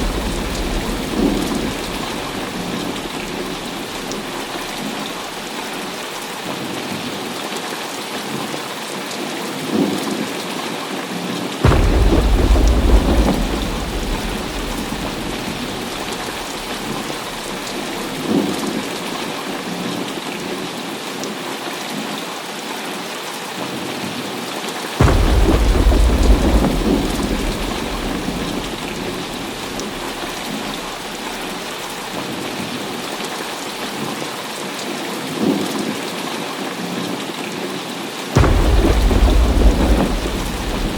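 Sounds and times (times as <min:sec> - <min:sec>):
thunder rumbling: 0:00.0 - 0:05.8, 0:11.6 - 0:19.4, 0:25.0 - 0:33.0, 0:38.4 - 0:40.9
heavy rain falling: 0:00.0 - 0:40.9.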